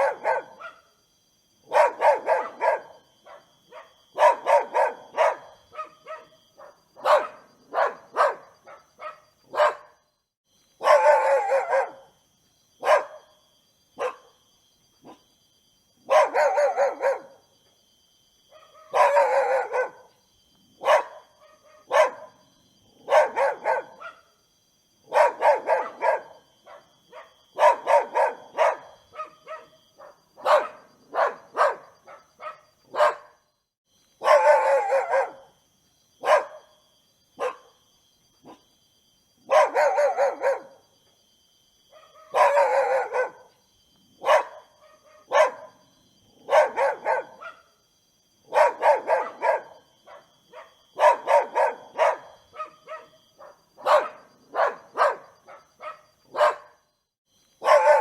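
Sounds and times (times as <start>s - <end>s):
dog barking: 0.0s - 1.0s, 1.6s - 10.0s, 10.8s - 12.2s, 12.8s - 13.4s, 14.0s - 14.4s, 15.0s - 15.3s, 16.0s - 17.5s, 18.5s - 20.2s, 20.8s - 24.4s, 25.0s - 33.4s, 34.2s - 35.6s, 36.2s - 37.8s, 38.4s - 38.8s, 39.4s - 40.9s, 41.9s - 43.6s, 44.2s - 47.8s, 48.4s - 56.9s, 57.6s - 58.0s.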